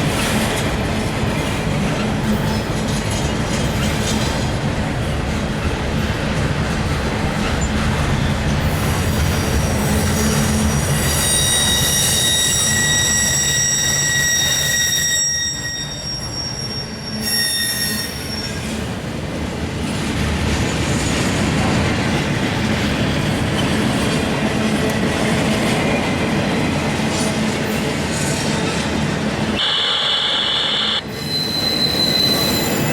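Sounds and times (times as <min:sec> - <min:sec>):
freight cars rolling on rails: 0:00.0 - 0:32.9
high-pitched wheel squeal: 0:09.3 - 0:18.7, 0:29.6 - 0:32.9.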